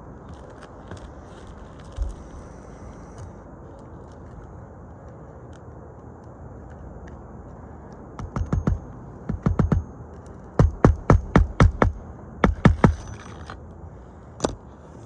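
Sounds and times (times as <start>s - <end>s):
outdoor background hiss: 0.0s - 15.0s
sharp knocks: 8.2s - 10.0s, 10.6s - 13.6s.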